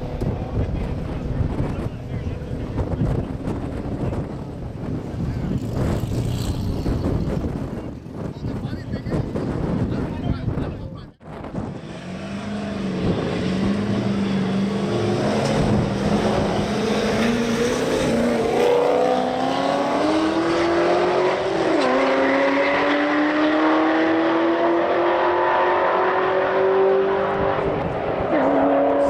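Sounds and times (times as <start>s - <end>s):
race car engine accelerating: 11.8s - 29.0s.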